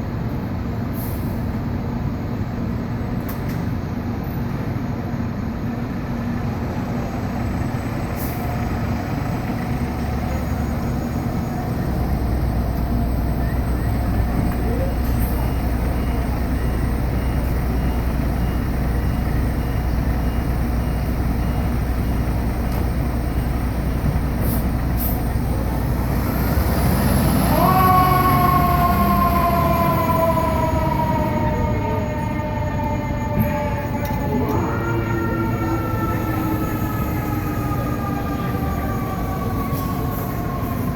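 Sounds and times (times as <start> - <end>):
fire engine rumble: 0.0 - 40.9
street traffic: 0.0 - 40.9
mechanical siren wailing: 25.5 - 40.9.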